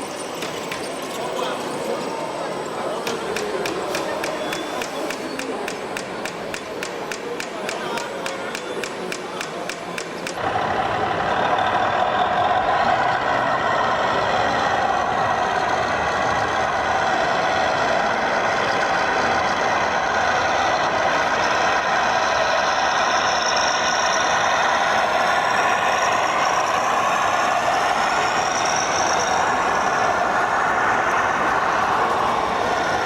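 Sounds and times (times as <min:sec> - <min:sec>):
model truck motor whirring: 0:08.8 - 0:33.0.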